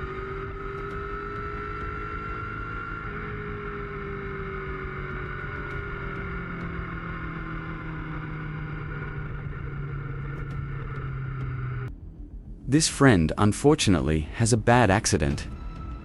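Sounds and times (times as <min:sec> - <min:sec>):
motorcycle engine cruising: 0:00.0 - 0:11.9
road and wind noise: 0:00.0 - 0:16.0.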